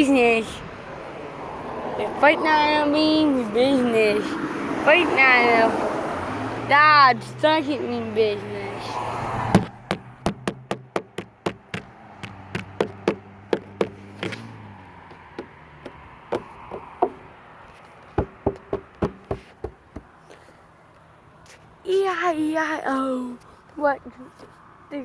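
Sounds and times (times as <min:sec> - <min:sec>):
rapid sharp taps: 0:09.5 - 0:17.3, 0:18.2 - 0:20.2.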